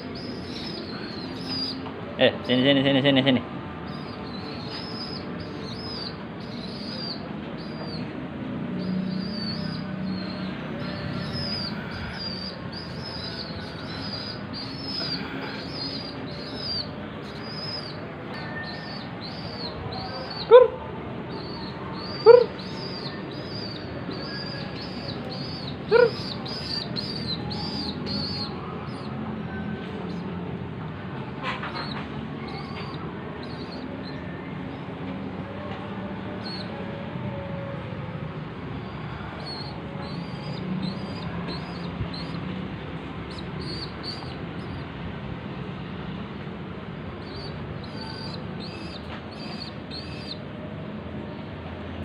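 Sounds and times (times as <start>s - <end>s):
young pigeons chirping: 0.0s - 1.9s, 3.9s - 8.1s, 8.8s - 20.7s, 21.3s - 29.1s, 39.2s - 42.5s, 43.2s - 44.8s, 47.2s - 50.4s.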